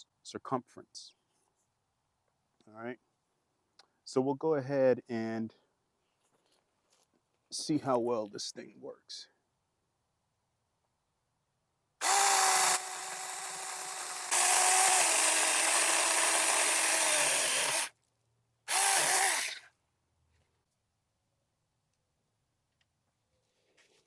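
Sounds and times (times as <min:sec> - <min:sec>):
electric chainsaw cutting wood: 0:12.0 - 0:17.9, 0:18.7 - 0:19.6.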